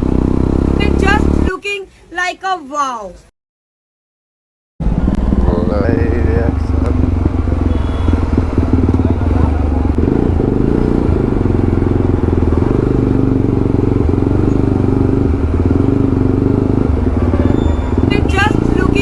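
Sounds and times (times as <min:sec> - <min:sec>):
motorcycle engine exhaust beat: 0:00.0 - 0:01.5, 0:06.0 - 0:19.0.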